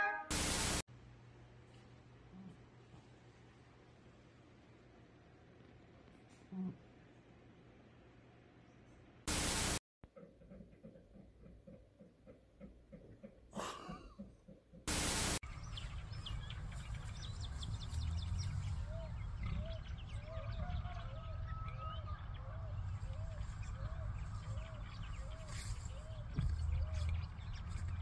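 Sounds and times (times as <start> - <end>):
burst of static: 0.3 - 0.8, 9.3 - 9.8, 14.9 - 15.4
songbirds chirping: 15.0 - 28.0
wind rumble on microphone: 15.5 - 28.0.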